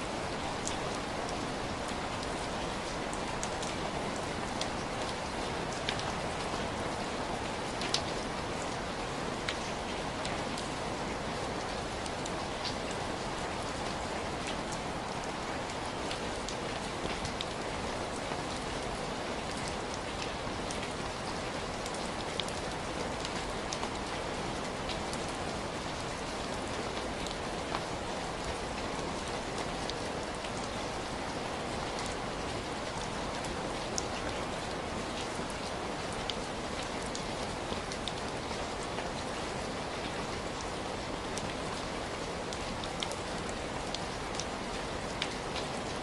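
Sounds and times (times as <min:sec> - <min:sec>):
raindrops ticking close by: 0:00.1 - 0:46.0.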